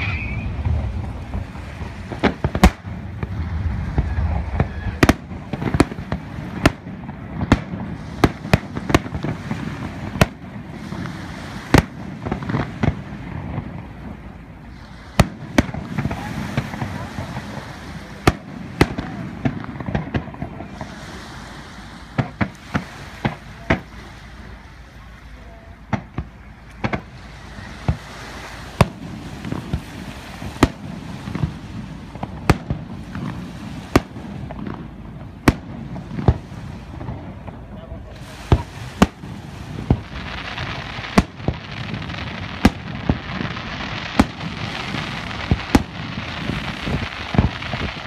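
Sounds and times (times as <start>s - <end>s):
firework bangs: 0.0s - 48.0s
voices murmuring: 15.9s - 28.7s, 36.9s - 39.4s.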